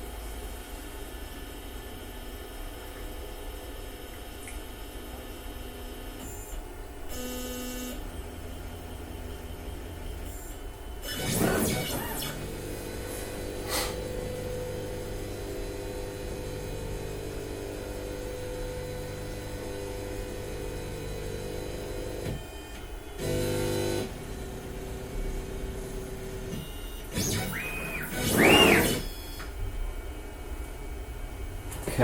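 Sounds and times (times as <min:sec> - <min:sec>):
machine motors humming: 0:06.0 - 0:29.8.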